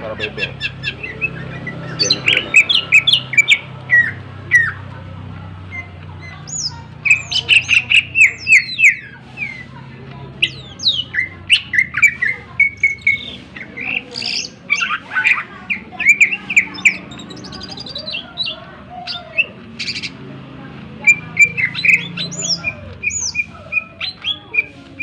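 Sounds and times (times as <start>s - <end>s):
bird singing sharp notes: 10.4s - 20.2s.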